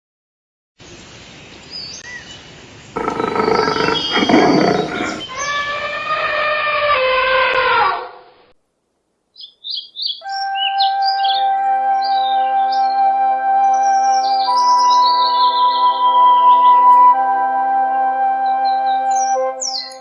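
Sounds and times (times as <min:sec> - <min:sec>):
long falling bird calls: 0:03.0 - 0:05.2
harsh bird call: 0:03.0 - 0:05.3.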